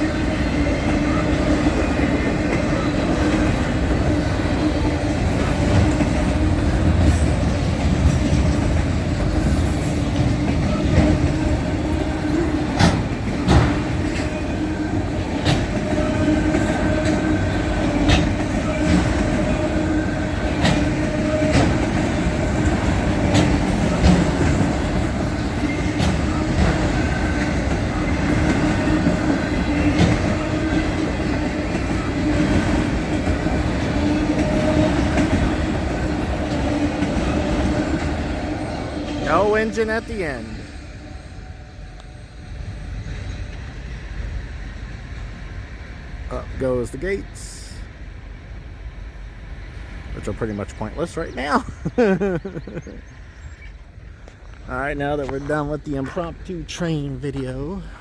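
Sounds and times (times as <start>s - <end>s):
train wheels clicking over rail joints: 0.0s - 47.5s
freight train rumbling past: 0.0s - 58.0s.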